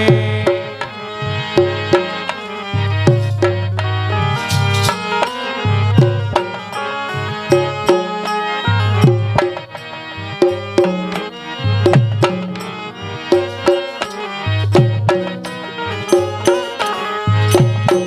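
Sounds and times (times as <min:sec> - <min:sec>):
repeating folk melody: 0:00.0 - 0:18.0
hand drums slapping and booming: 0:02.9 - 0:06.6, 0:10.4 - 0:12.7.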